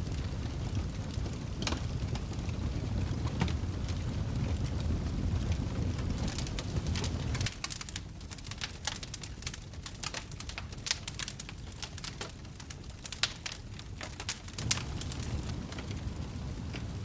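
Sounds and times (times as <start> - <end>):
wood fire crackling and popping: 0.0 - 17.0
low rumble: 14.3 - 17.0.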